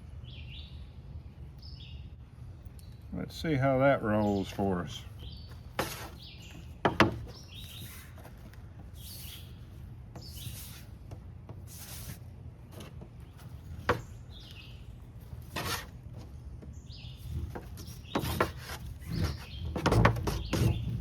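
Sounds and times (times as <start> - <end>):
rough rubbing swish: 5.7 - 6.4, 10.2 - 11.0, 11.6 - 12.9, 15.4 - 16.0.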